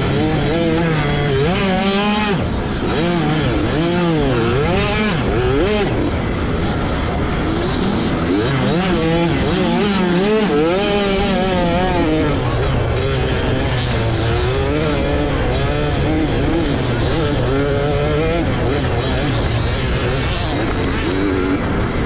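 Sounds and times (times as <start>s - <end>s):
two-stroke motocross engine revving: 0.0s - 22.0s.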